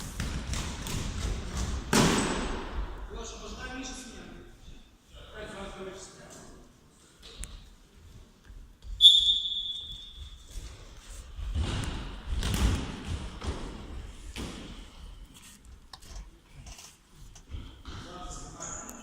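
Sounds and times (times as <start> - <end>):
football kicked and bouncing: 0.0 - 2.3, 11.4 - 14.7
referee's whistle: 9.0 - 10.2.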